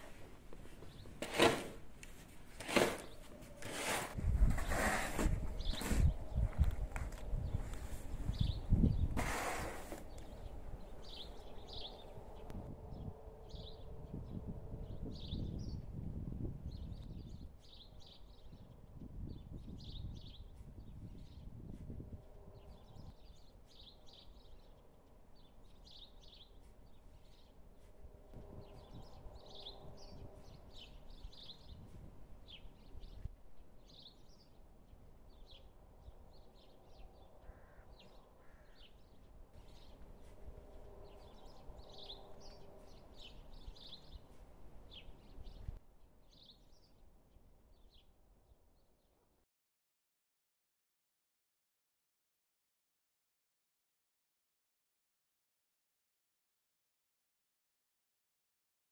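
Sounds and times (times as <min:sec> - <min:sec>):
small birds chirping: 0:00.7 - 0:01.4, 0:05.5 - 0:06.4, 0:07.0 - 0:15.9, 0:16.6 - 0:48.2.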